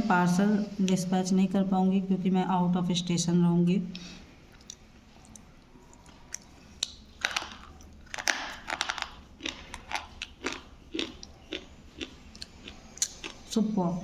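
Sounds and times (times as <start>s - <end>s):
slate pencil crunching in teeth: 7.2s - 13.4s.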